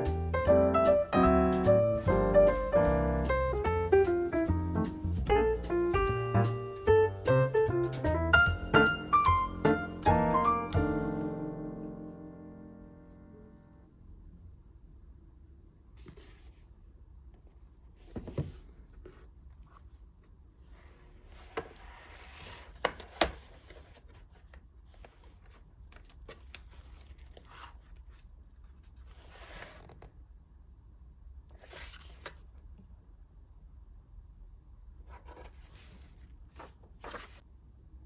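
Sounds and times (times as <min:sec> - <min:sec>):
rustling and scraping: 0:16.0 - 0:16.8, 0:17.4 - 0:30.1, 0:35.1 - 0:37.4.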